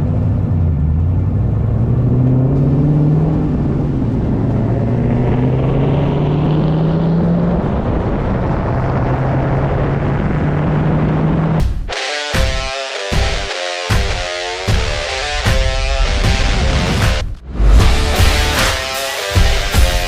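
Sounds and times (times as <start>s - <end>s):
car engine under load: 0.0s - 11.9s
road noise: 0.0s - 20.0s.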